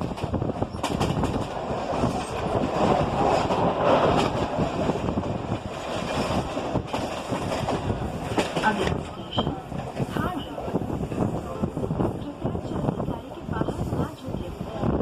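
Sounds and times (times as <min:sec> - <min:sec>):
train rumbling with wheels clattering: 0:00.0 - 0:15.0.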